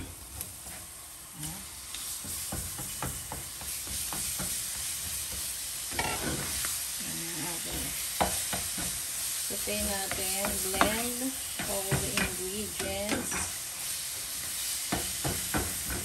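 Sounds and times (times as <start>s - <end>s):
meat sizzling in a frying pan: 0.0s - 16.0s
spatula scraping and tapping a pan: 2.0s - 6.7s, 8.2s - 9.1s, 9.7s - 13.6s, 14.4s - 16.0s.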